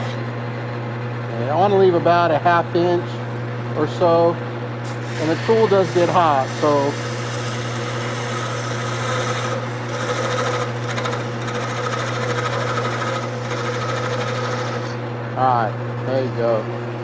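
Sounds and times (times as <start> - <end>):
wood lathe motor hum: 3.1 - 16.6
turning tool cutting wood: 4.0 - 15.1.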